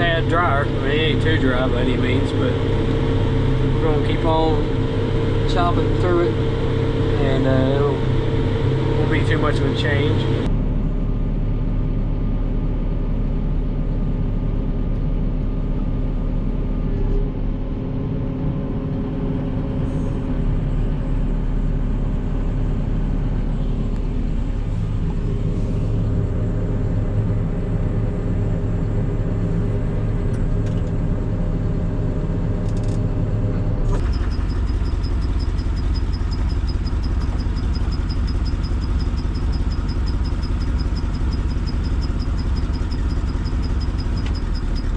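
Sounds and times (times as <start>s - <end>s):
thin high whine: 0.0s - 10.5s
tractor and chopper machine drone: 0.0s - 44.9s.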